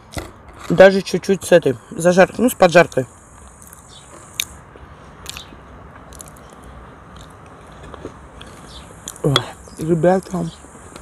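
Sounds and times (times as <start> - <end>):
person chewing soft food: 3.4 - 4.6, 5.2 - 9.3
wet mouth clicks: 5.2 - 5.5, 6.1 - 7.6, 8.4 - 9.2.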